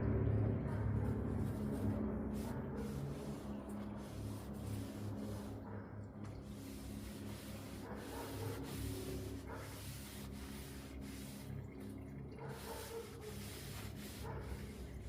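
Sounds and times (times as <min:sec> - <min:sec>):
low hum: 0:00.0 - 0:07.9
oil streaming into a pan: 0:09.8 - 0:15.0.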